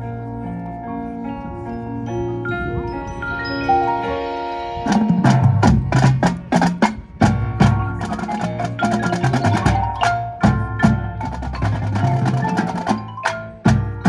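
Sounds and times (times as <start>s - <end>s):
marching band playing: 4.2s - 14.0s
drum and percussion hits: 4.9s - 14.0s
ringing mallet percussion: 7.6s - 14.0s.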